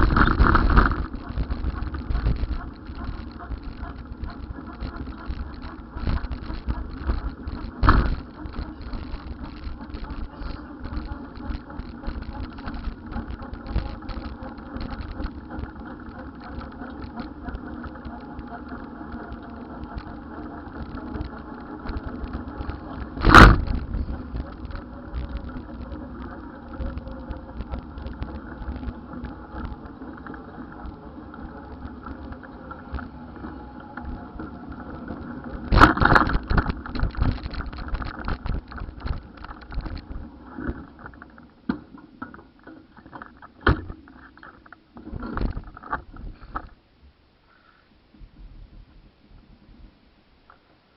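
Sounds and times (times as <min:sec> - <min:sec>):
loud sharp thumps: 0:00.0 - 0:15.7, 0:21.2 - 0:25.4
vehicle and road rumble: 0:00.0 - 0:46.8.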